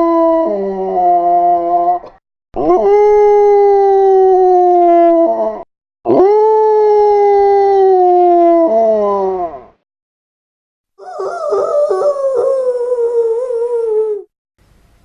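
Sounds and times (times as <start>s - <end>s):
dogs howling: 11.0s - 14.3s.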